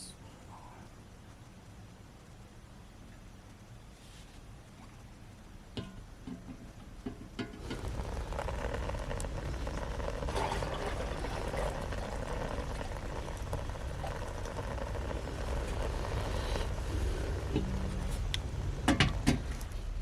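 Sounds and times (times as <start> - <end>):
food bubbling and hissing: 0.0 - 20.0.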